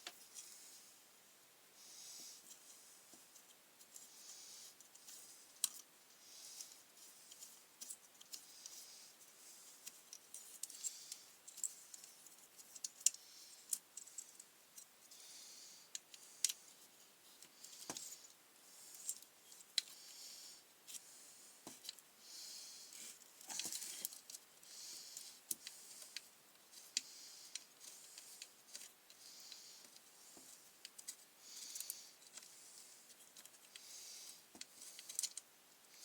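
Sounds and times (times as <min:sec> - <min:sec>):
small tools clicking and tapping: 0:33.1 - 0:35.5.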